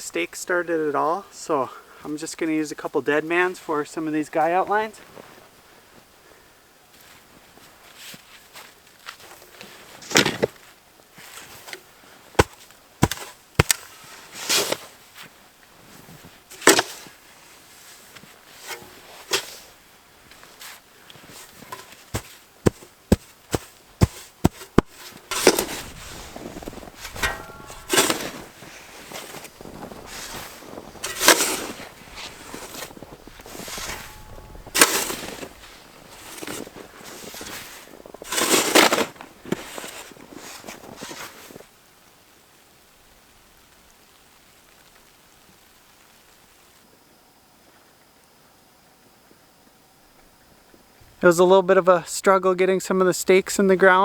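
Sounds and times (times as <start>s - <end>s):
scraping and crunching in snow: 3.4s - 5.6s, 6.9s - 41.7s.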